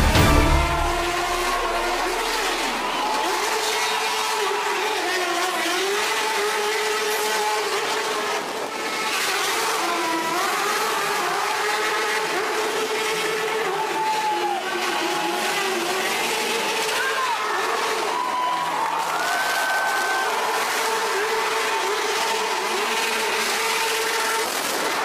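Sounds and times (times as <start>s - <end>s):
tyre screeching: 0.0s - 3.9s
engines revving: 0.0s - 25.0s.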